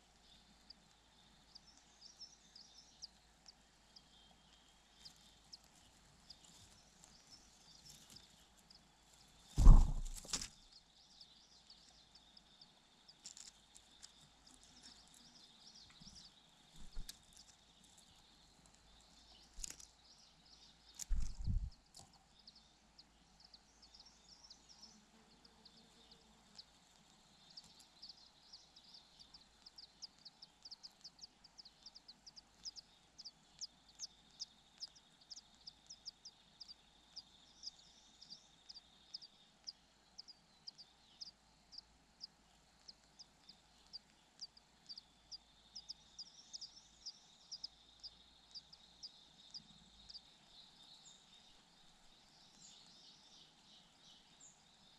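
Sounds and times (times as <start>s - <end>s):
bird peeping: 0.0s - 54.9s
dull thumps: 9.6s - 10.5s.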